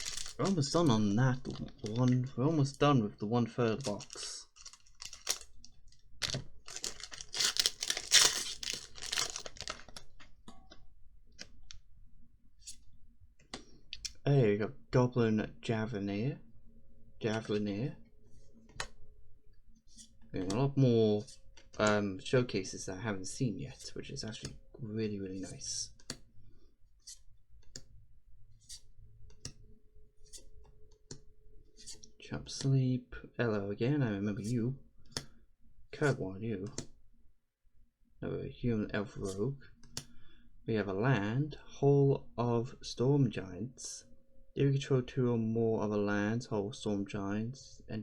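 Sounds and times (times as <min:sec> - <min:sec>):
foil wrapper crinkling and tearing: 0:00.0 - 0:00.8, 0:03.7 - 0:10.2.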